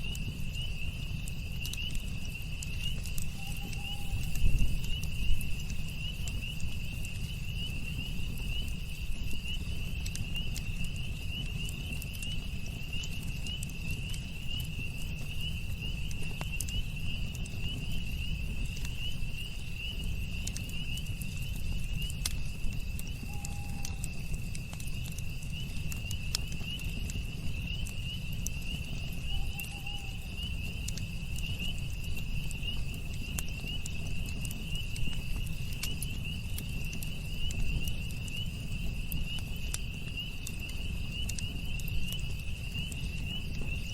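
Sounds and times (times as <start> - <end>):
campfire crackling and popping: 0.0 - 43.9
night insects trilling: 0.0 - 43.9
faint calls: 3.2 - 4.7, 29.2 - 30.6.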